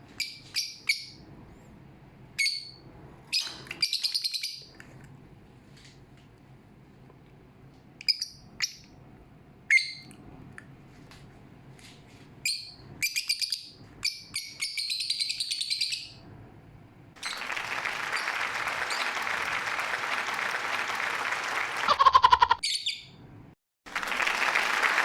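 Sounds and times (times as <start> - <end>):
lovebird chirping: 0.2 - 1.2, 2.4 - 4.7, 9.7 - 10.1, 12.4 - 16.2, 22.6 - 23.2.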